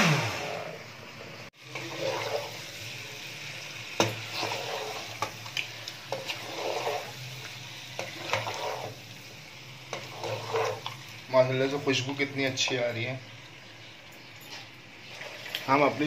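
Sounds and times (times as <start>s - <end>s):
chicken frying in oil: 1.2s - 16.0s
wooden spoon scraping pot: 1.6s - 2.7s, 4.0s - 5.4s, 6.1s - 7.4s, 8.0s - 9.1s, 9.8s - 12.9s, 14.4s - 16.0s.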